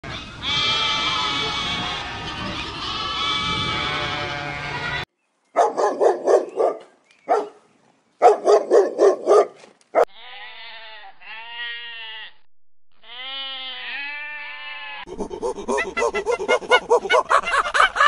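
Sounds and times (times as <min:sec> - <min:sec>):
goats bleating: 0:00.1 - 0:05.1, 0:10.2 - 0:12.4, 0:13.0 - 0:15.1
sheep bleating: 0:00.1 - 0:05.1, 0:10.1 - 0:15.1.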